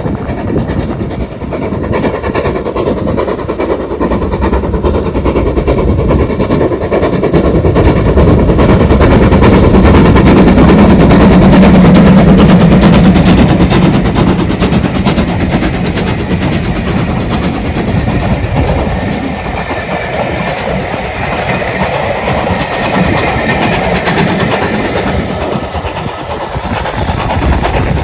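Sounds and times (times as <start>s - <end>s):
steam locomotive exhaust beats: 0.0s - 28.0s.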